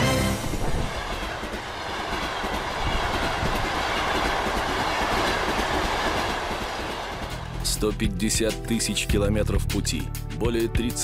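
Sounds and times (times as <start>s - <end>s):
train rushing noise: 0.0s - 7.8s.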